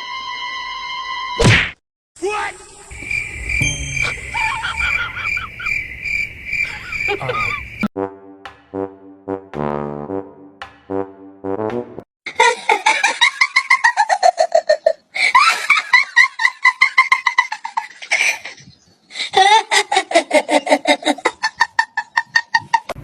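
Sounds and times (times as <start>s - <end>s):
person laughing hard: 4.0s - 5.8s, 6.6s - 7.7s, 12.3s - 18.6s, 19.2s - 23.0s.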